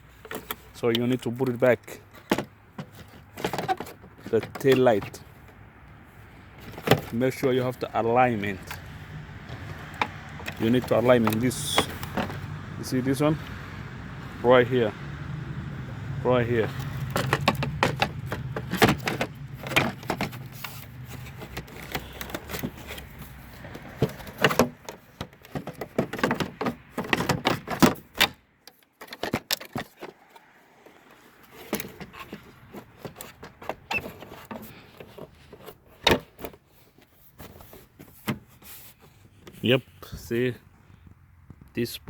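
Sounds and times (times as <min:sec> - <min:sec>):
plastic clicks and knocks: 0:00.2 - 0:06.0, 0:09.4 - 0:12.6, 0:16.6 - 0:30.2.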